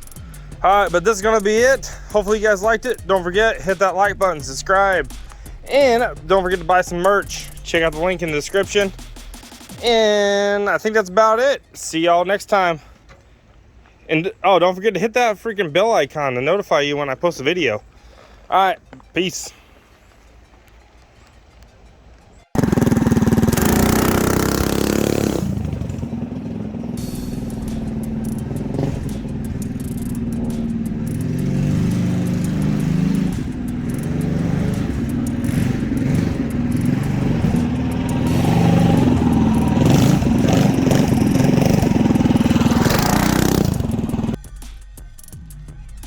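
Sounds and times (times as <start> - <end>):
mini bike engine revving: 22.6 - 44.4.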